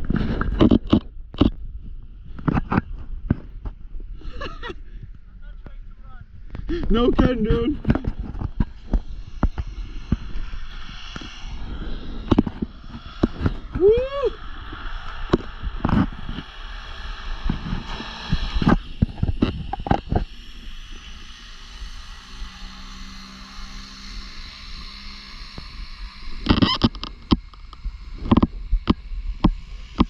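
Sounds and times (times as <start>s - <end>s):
wind buffeting thumps: 0.0s - 20.8s
wind on microphone: 0.0s - 30.0s.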